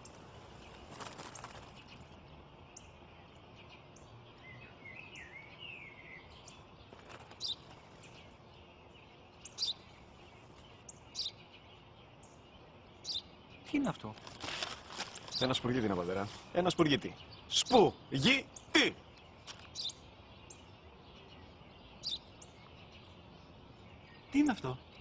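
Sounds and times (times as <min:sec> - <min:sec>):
small birds chirping: 0:00.0 - 0:25.0
bird warbling phrase: 0:15.4 - 0:19.1, 0:24.2 - 0:24.9.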